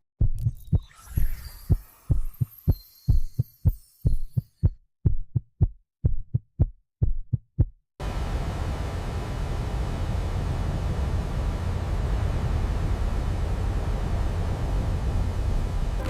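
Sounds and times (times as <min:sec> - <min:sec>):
steady rushing rumble: 0:08.0 - 0:16.0.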